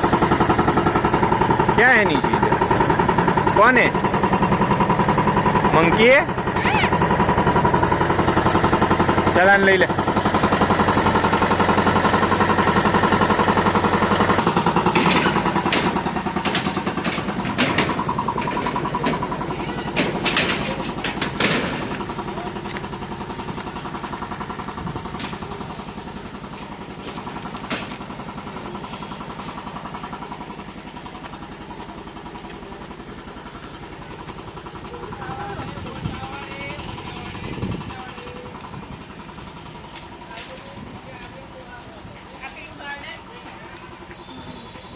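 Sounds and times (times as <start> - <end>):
motor engine running: 0.0 - 44.9
sharp clicks and knocks: 14.8 - 22.9.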